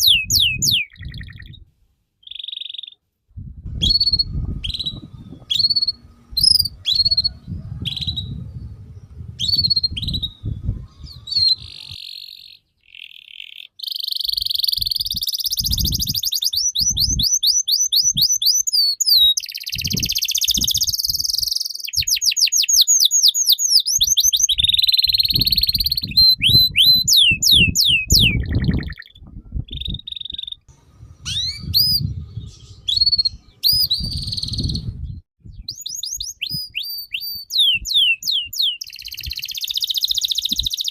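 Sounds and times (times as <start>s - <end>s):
songbird singing: 0.0s - 3.0s, 3.8s - 40.9s
low rumbling noise: 3.3s - 12.0s, 30.7s - 35.3s.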